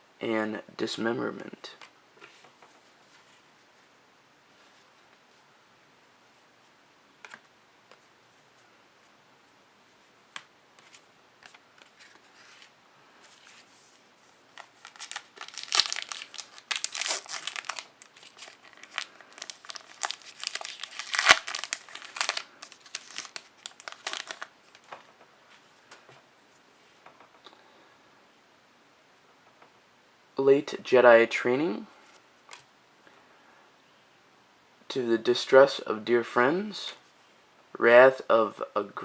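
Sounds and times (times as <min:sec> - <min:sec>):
foil wrapper crinkling: 0:14.5 - 0:24.9.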